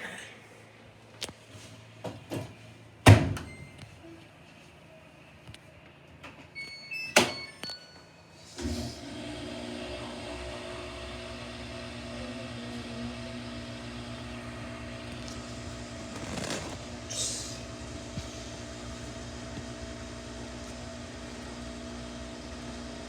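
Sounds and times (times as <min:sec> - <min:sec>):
washing machine humming: 0:08.4 - 0:23.0.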